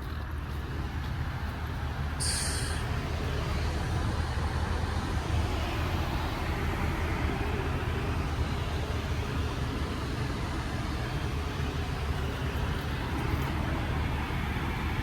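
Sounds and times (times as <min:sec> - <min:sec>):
low rumble of road vehicles: 0:00.0 - 0:15.0
short hiss: 0:02.2 - 0:02.8.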